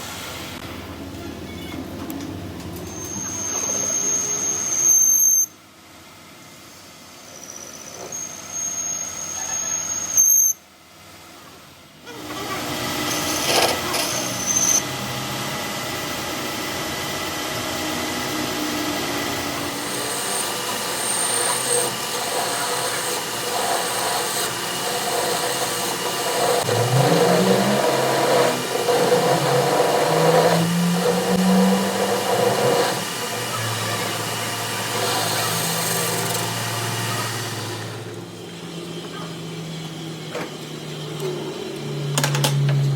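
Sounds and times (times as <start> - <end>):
high-pitched tool squeal: 2.8 - 5.6, 7.3 - 10.6, 12.1 - 14.9, 18.2 - 37.8.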